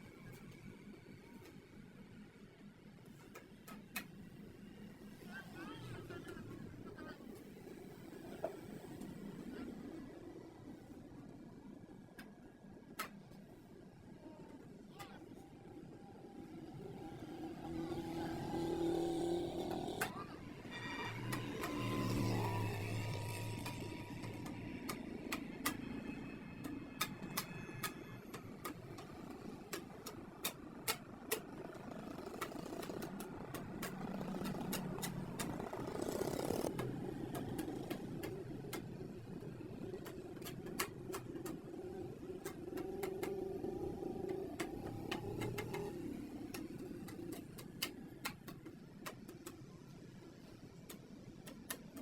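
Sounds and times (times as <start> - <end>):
workshop background noise: 17.6 - 52.0.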